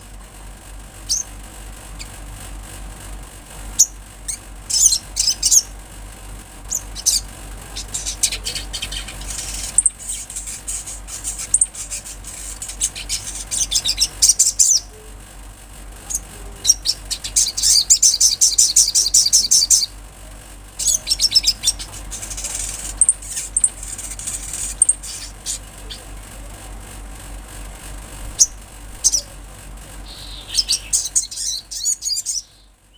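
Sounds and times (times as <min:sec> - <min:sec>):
bird singing high trills: 0:01.1 - 0:01.3, 0:03.8 - 0:05.7, 0:06.7 - 0:15.0, 0:16.1 - 0:20.0, 0:20.8 - 0:26.1, 0:28.4 - 0:29.4, 0:30.0 - 0:32.8.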